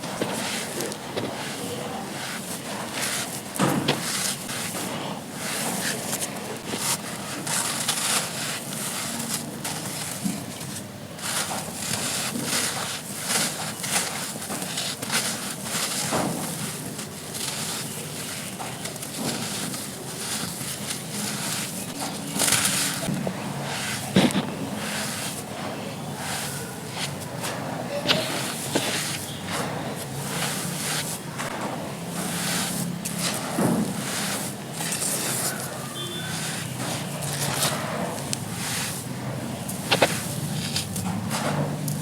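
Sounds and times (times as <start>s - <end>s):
charcoal crumbling and crunching: 0.0s - 42.0s.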